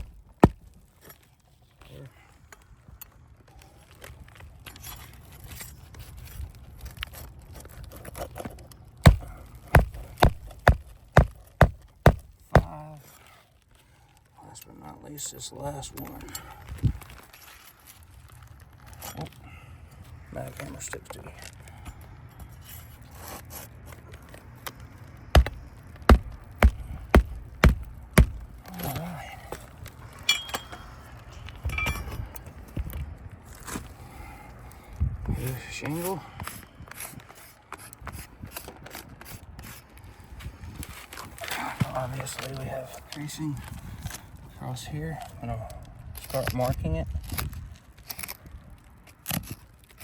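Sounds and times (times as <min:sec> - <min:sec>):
hammer blows driving a nail: 0:00.0 - 0:00.6, 0:09.0 - 0:12.8, 0:25.4 - 0:28.4.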